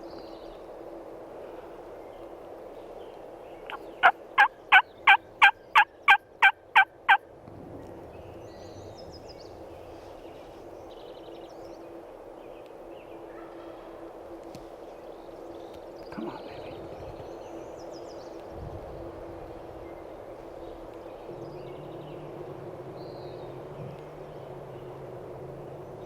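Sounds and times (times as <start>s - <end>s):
wild turkey hen yelps: 3.7s - 7.2s.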